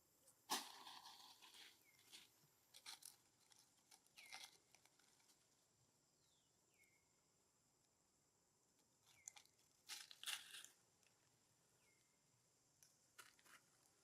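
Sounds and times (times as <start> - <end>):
faint crackling and crunching: 0.2 - 6.0, 8.6 - 14.0.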